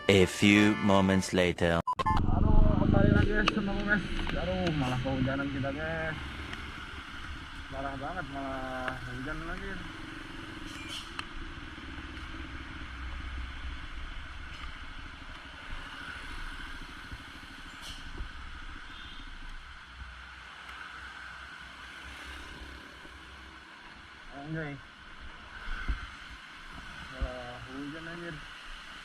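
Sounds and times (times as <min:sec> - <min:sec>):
motorcycle engine hum: 0:02.3 - 0:20.3
rain and wet tyres hissing: 0:03.7 - 0:29.0
wind rumble on microphone: 0:25.6 - 0:27.4.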